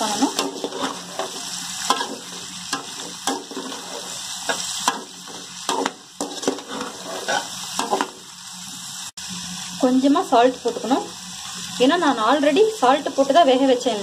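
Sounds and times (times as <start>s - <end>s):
food sizzling in oil: 0.0s - 14.0s
metal spoon scraping pan: 0.1s - 8.0s.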